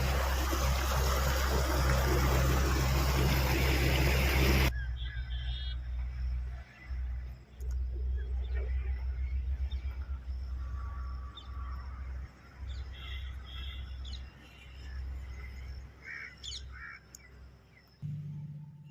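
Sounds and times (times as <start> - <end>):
low uneven rumble: 0.0 - 4.8
crows cawing: 16.0 - 17.1.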